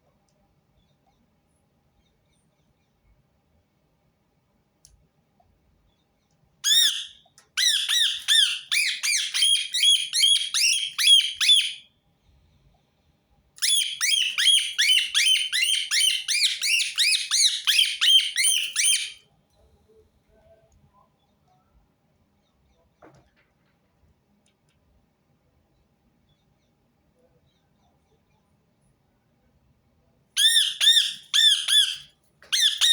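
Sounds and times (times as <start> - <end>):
parakeet squawking: 6.6 - 11.8, 13.6 - 19.2, 30.4 - 32.9.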